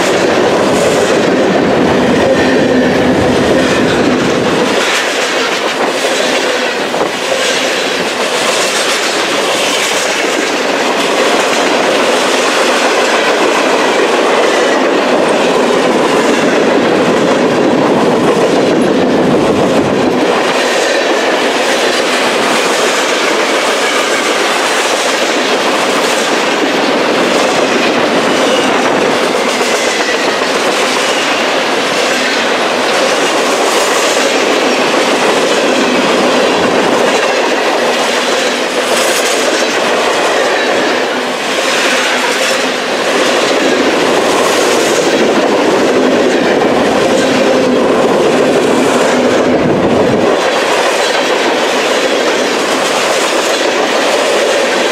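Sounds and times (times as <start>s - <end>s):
train rumbling past: 0.0s - 54.9s
wheels clicking over rail joints: 0.0s - 54.9s.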